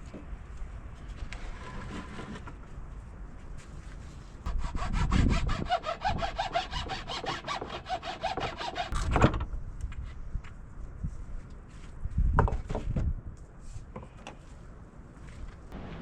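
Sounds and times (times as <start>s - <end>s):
hand saw cutting wood: 1.4s - 2.5s, 4.5s - 9.0s.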